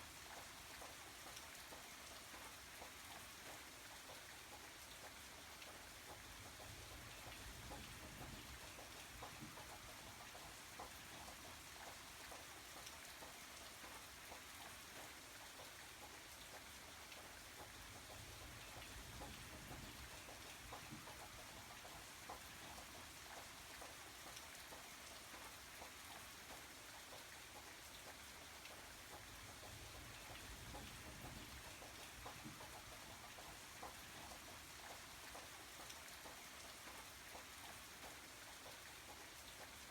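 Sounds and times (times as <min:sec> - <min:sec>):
faint steady rain: 0:00.0 - 0:39.9.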